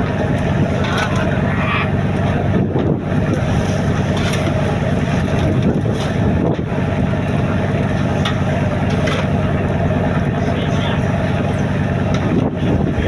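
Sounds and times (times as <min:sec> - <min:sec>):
wind on microphone: 0:00.0 - 0:07.0, 0:11.9 - 0:13.0
boat engine running: 0:00.0 - 0:13.0.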